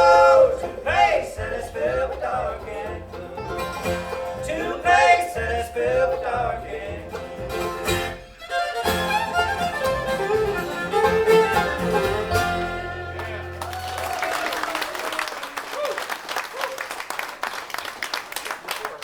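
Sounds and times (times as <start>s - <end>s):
banjo: 0.0s - 13.9s
fiddle melody: 0.0s - 14.0s
guitar: 0.0s - 14.4s.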